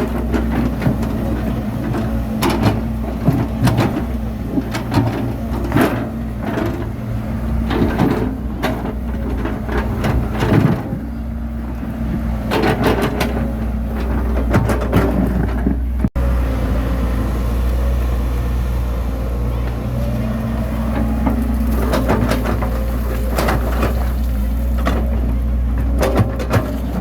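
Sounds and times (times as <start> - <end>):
bulldozer diesel engine running: 0.0 - 27.0
metallic clanks and knocks: 12.5 - 16.1, 21.0 - 27.0.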